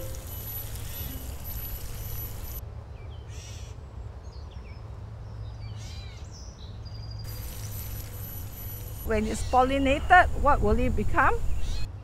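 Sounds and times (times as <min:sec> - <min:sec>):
birds chirping and whistling: 0:00.0 - 0:02.6, 0:07.0 - 0:10.1, 0:11.4 - 0:11.9.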